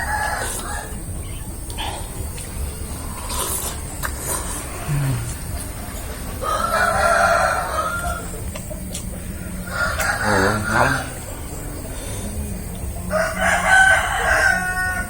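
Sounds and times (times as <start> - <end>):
rooster crowing: 0.0 - 1.5, 6.4 - 8.5, 9.3 - 11.6, 12.3 - 15.0.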